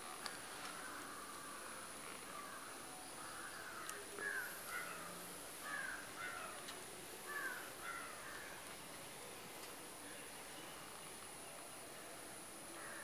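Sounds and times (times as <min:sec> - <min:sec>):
faint high-pitched whine: 0:00.0 - 0:13.0
bird calling: 0:00.2 - 0:08.7.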